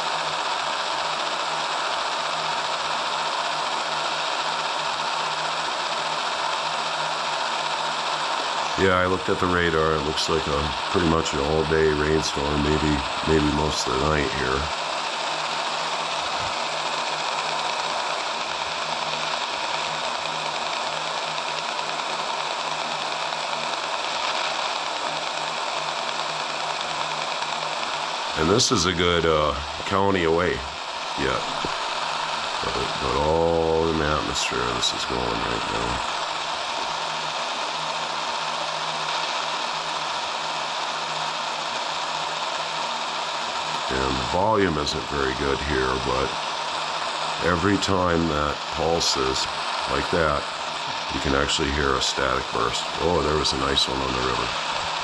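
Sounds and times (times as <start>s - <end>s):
radio static hiss: 0.0s - 55.0s
faint low hum: 28.4s - 36.9s, 47.4s - 55.0s.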